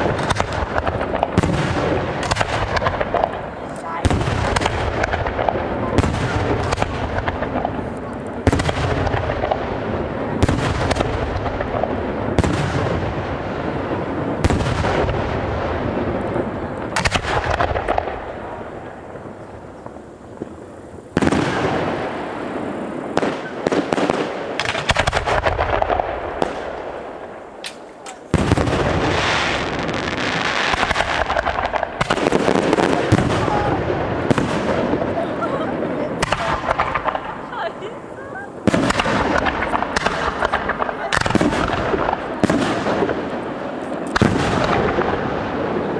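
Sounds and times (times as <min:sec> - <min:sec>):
firework crackle: 0:00.0 - 0:45.9
firework shell bursts: 0:27.6 - 0:28.6.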